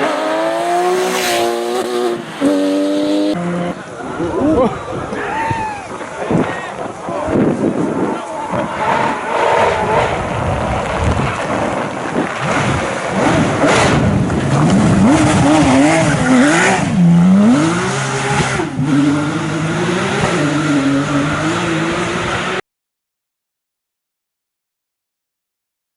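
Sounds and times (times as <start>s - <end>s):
racing car engine revving: 0.0s - 3.9s, 12.4s - 22.6s.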